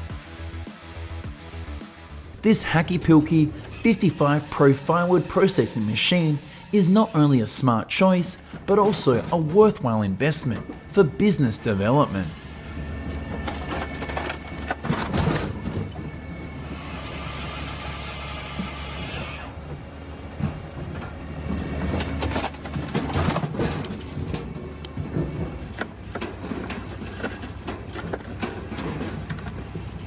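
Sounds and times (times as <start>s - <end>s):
engine drone: 0.0s - 7.6s, 8.3s - 23.2s.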